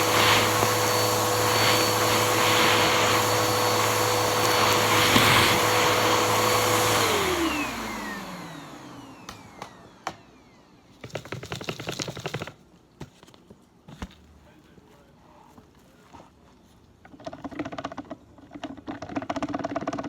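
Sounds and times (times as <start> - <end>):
vacuum cleaner running: 0.0 - 10.8.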